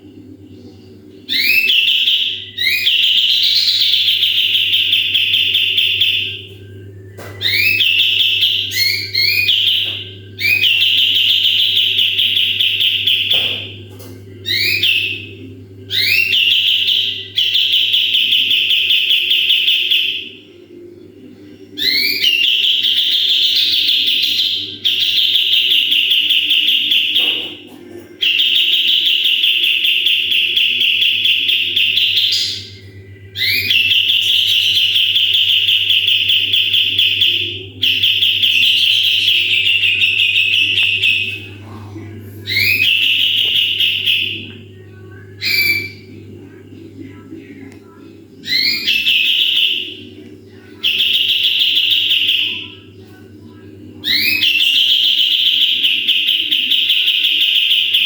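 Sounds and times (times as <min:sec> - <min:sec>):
steady low hum: 0:00.0 - 0:58.0
songbird trilling: 0:01.3 - 0:06.5, 0:07.4 - 0:13.7, 0:14.4 - 0:20.3, 0:28.2 - 0:41.6, 0:42.4 - 0:44.5, 0:45.4 - 0:46.1, 0:48.4 - 0:50.0.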